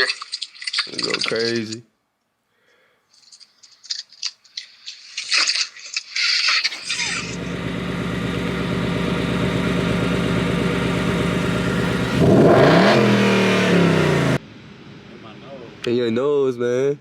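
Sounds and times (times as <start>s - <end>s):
car engine revving: 6.7s - 15.8s.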